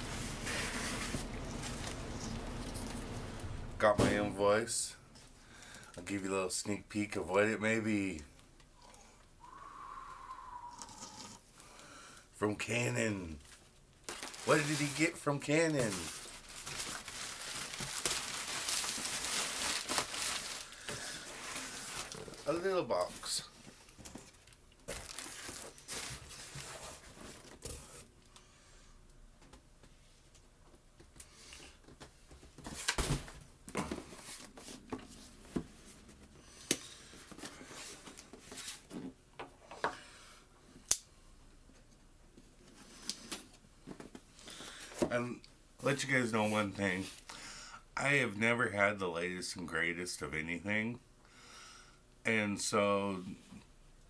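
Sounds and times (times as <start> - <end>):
packing material rustling: 0.0 - 4.3, 13.4 - 28.0.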